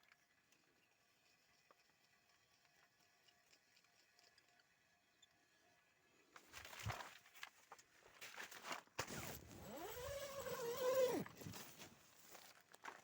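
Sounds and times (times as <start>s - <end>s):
rustling and scuffing: 6.4s - 10.0s, 11.0s - 13.0s.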